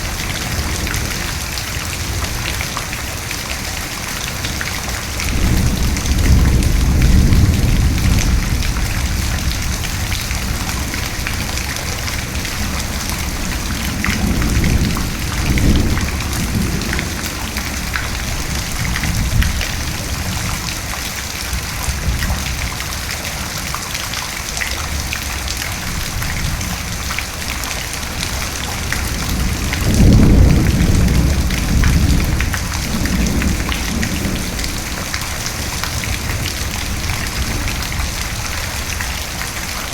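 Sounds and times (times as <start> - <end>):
steady rain falling: 0.0 - 39.9
thunder rumbling: 4.3 - 20.6, 25.8 - 39.4.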